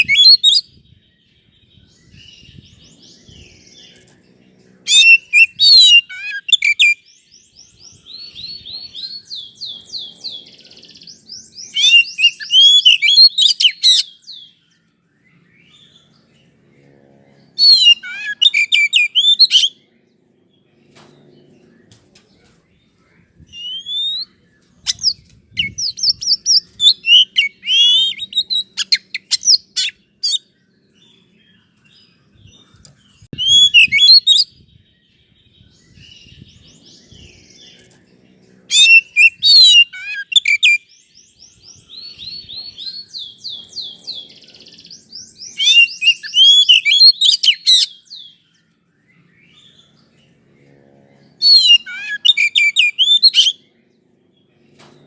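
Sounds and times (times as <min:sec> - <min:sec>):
bird singing whistled phrases: 0:00.0 - 0:00.8, 0:04.9 - 0:10.1, 0:10.8 - 0:14.6, 0:17.6 - 0:19.8, 0:23.5 - 0:30.4, 0:33.4 - 0:34.6, 0:38.7 - 0:41.0, 0:44.8 - 0:48.4, 0:51.4 - 0:53.6.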